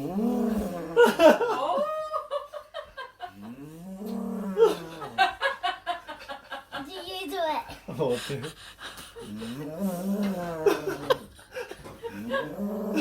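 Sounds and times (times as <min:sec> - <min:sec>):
low growling dinosaur sound: 0:00.0 - 0:01.3, 0:03.4 - 0:05.2, 0:09.3 - 0:11.3, 0:12.2 - 0:13.0.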